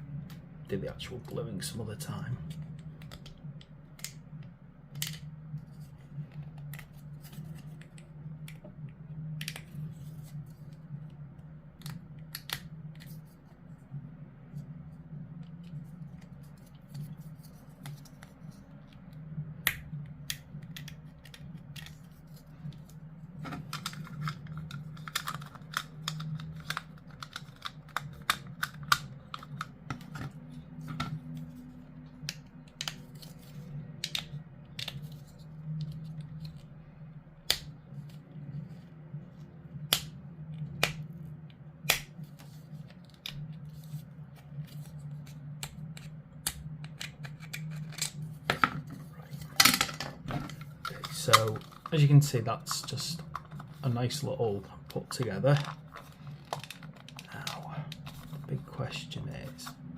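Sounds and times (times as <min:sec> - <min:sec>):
steady low hum: 0:00.0 - 0:59.9
plastic parts clicking and snipping: 0:22.7 - 0:31.1, 0:52.6 - 0:53.8, 0:55.1 - 0:58.5.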